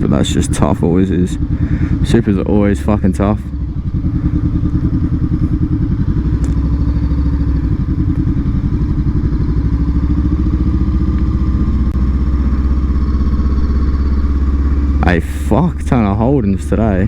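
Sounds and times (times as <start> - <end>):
motorcycle engine running at low revs: 0.0 - 17.0.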